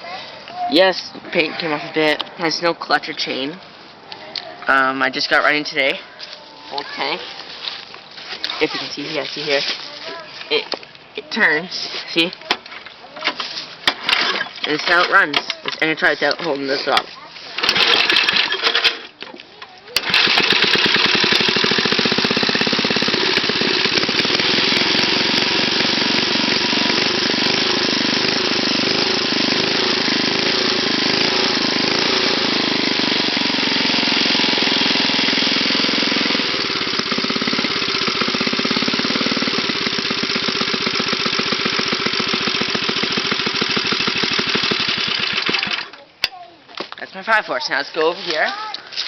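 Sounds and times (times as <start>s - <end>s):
go-kart engine running: 17.6s - 19.1s, 20.0s - 46.0s.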